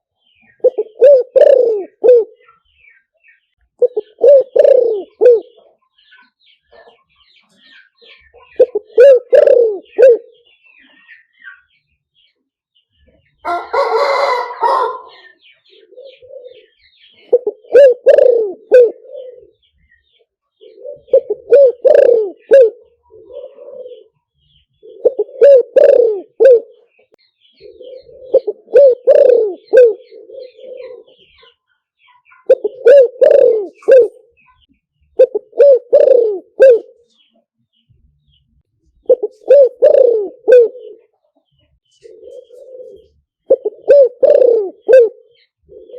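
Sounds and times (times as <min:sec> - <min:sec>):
dove cooing: 0:00.4 - 0:02.6, 0:03.8 - 0:05.8, 0:07.7 - 0:11.1, 0:13.4 - 0:19.7, 0:20.5 - 0:31.6, 0:32.4 - 0:34.6, 0:35.2 - 0:37.3, 0:39.0 - 0:41.3, 0:41.9 - 0:45.9.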